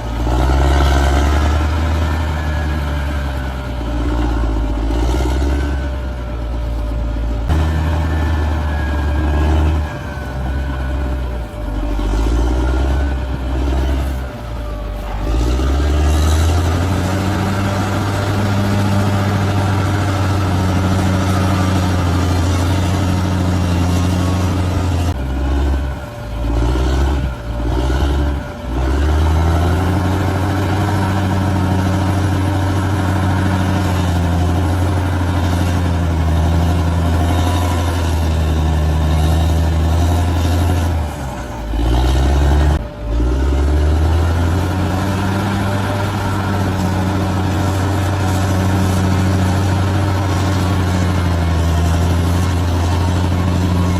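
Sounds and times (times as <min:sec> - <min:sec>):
bulldozer diesel engine running: 0:00.0 - 0:53.9.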